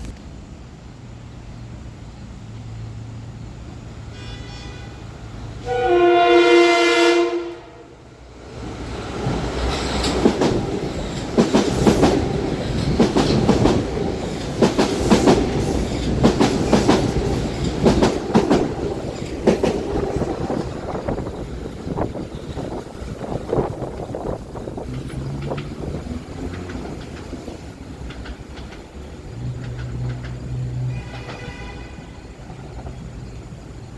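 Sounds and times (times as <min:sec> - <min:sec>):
train passing rumble: 0:00.0 - 0:33.9
train horn: 0:04.1 - 0:08.1, 0:29.4 - 0:32.4
wheels clicking over rail joints: 0:08.6 - 0:33.9.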